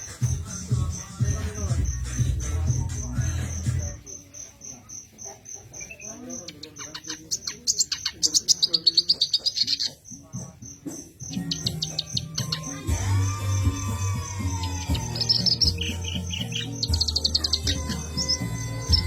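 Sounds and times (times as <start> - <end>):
low musical beat: 0.0 - 4.0
insect-like chirp pulsing: 0.0 - 19.0
reed warbler singing: 0.0 - 19.0.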